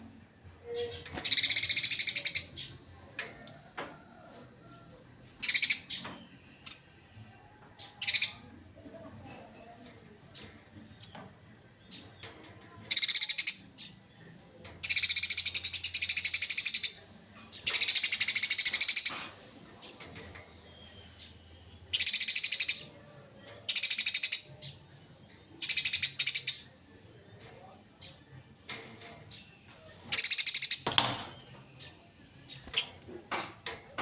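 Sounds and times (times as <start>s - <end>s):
sparrow chattering calls: 0.7s - 2.7s, 12.9s - 13.8s, 14.8s - 19.2s, 21.9s - 22.9s, 23.7s - 24.5s, 25.6s - 26.7s, 30.1s - 31.0s.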